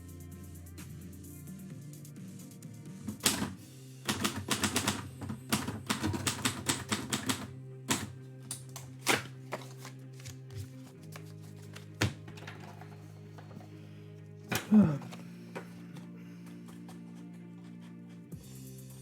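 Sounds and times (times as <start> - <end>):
background music: 0.0 - 19.0
typewriter keys striking: 3.2 - 8.1.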